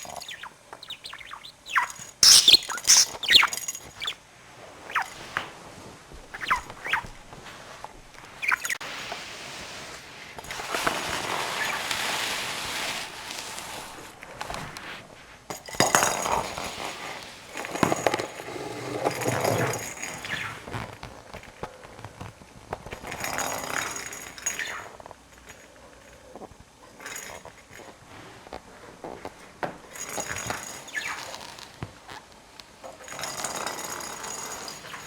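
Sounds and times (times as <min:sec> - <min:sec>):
budgerigar chirping: 0:00.0 - 0:04.2, 0:08.4 - 0:08.8
rustling: 0:00.0 - 0:18.2.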